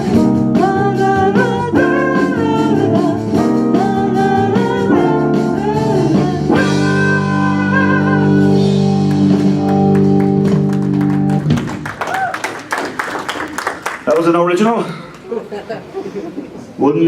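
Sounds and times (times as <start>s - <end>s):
live band music led by guitar: 0.0s - 12.0s.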